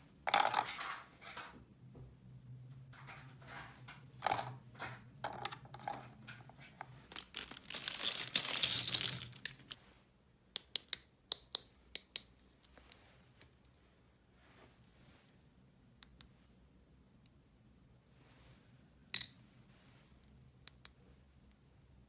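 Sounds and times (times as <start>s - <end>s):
packaging crinkling and tearing: 7.0s - 9.8s
plastic toy pieces clicking: 7.1s - 9.8s.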